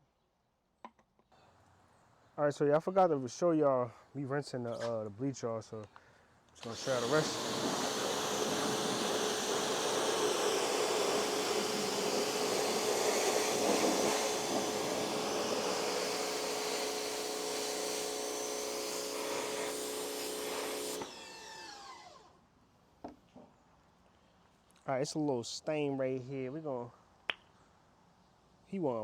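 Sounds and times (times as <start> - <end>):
pressure washer spraying water: 6.6 - 22.0
motor humming and spinning down: 6.6 - 22.3.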